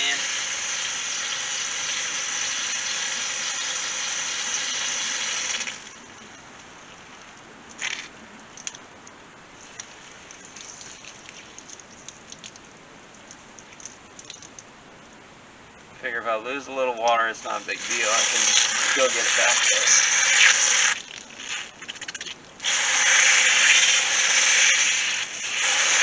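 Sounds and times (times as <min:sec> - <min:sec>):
fluid rushing through valve: 0:00.0 - 0:06.0, 0:17.4 - 0:26.0
small clicks: 0:07.7 - 0:14.7.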